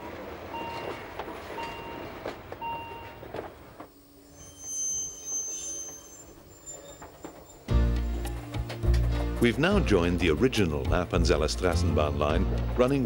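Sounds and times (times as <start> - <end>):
train rolling past: 0.0 - 13.0
wheel clicks over rail joints: 6.8 - 9.7.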